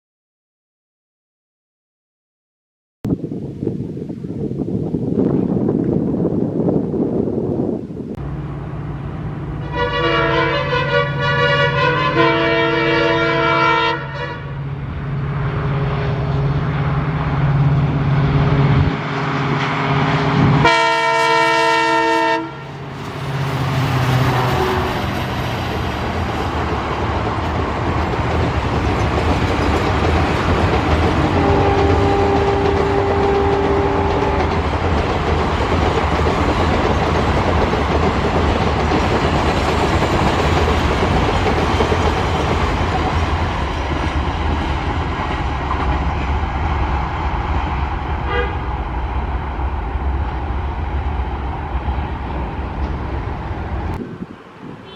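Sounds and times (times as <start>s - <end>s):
locomotive engine humming: 7.5s - 54.9s
locomotive horn blasts: 9.6s - 14.7s, 20.4s - 22.8s, 24.4s - 25.0s, 31.3s - 34.5s, 48.2s - 48.7s
wheels clattering over rail joints: 25.0s - 46.7s.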